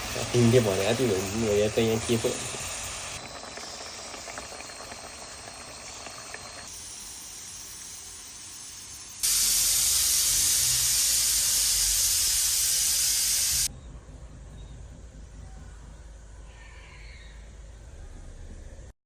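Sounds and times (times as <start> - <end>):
loud steady hiss: 0.0 - 3.2, 5.2 - 13.7
faint even hiss: 9.2 - 13.7.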